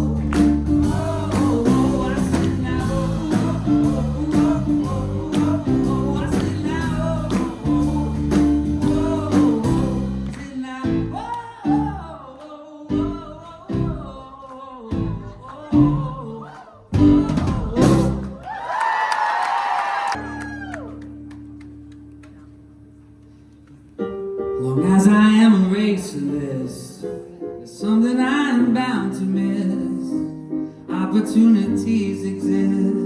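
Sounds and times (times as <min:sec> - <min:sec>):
live pop band playing: 0:00.0 - 0:18.4.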